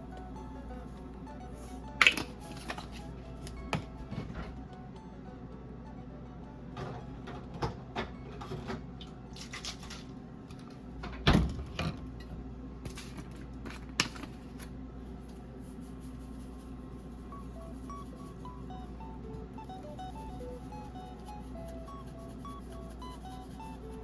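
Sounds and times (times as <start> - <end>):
steady low hum: 0.0 - 24.0
objects scraping and clicking: 2.0 - 4.4.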